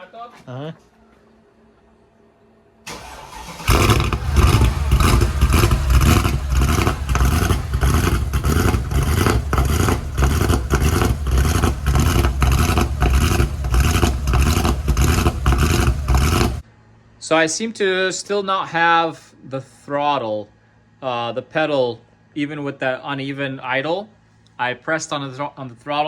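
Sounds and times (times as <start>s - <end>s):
car engine starting: 2.9s - 16.6s
engine idling roughly: 2.9s - 16.6s.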